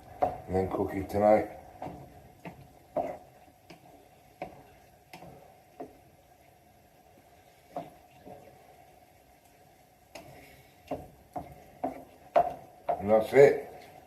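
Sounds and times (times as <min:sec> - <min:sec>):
faint steady background: 0:00.0 - 0:14.0
spoon tapping a pan: 0:10.9 - 0:13.1.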